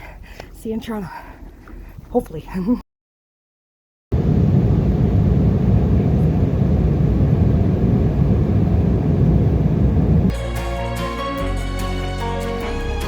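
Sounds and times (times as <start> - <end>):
jet airliner engine rumble: 4.1 - 10.3
background music: 10.3 - 13.0.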